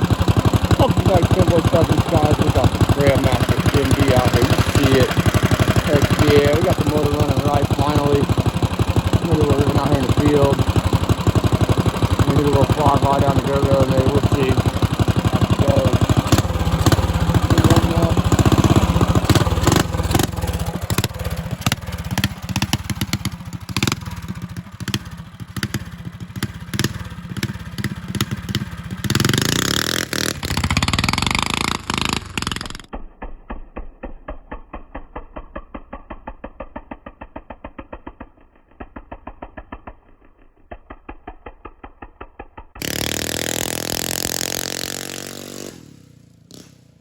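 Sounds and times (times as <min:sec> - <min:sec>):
mini bike engine running: 0:00.0 - 0:47.0.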